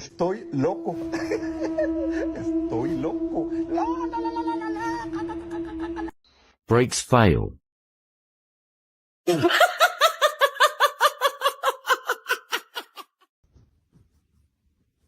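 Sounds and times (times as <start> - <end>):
high-pitched laughter: 9.3 - 13.2.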